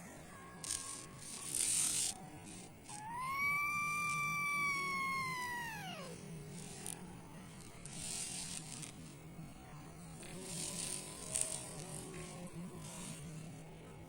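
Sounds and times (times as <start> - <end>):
kitten meowing: 2.9 - 6.2.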